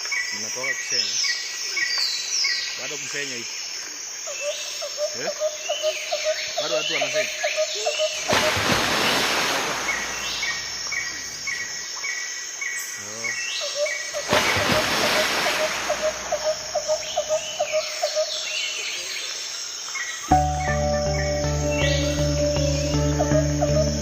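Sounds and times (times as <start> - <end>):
insects hissing: 0.0 - 24.0
birds calling: 4.3 - 19.4, 20.0 - 24.0.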